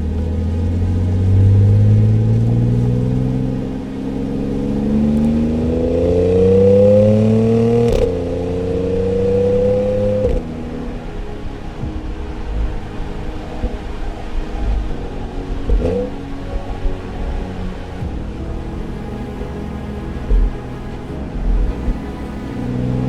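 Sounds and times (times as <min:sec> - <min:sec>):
car engine accelerating hard: 0:00.0 - 0:10.9.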